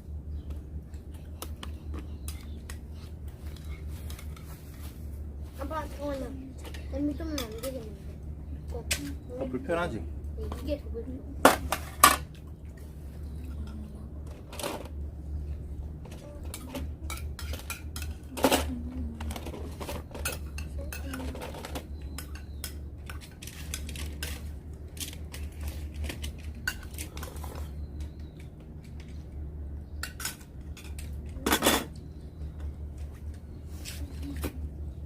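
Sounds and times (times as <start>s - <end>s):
low hum: 0.0s - 35.0s
utensils clinking against bowls: 6.6s - 7.8s, 16.0s - 29.2s, 30.0s - 32.0s.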